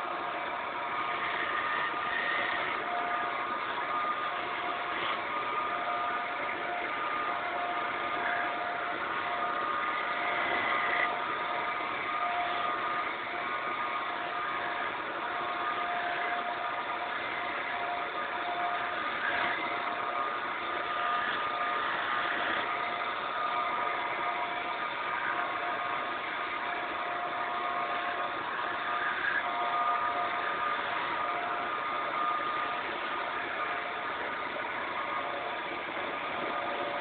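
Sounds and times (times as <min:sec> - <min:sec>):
wood lathe running: 0:00.0 - 0:37.0.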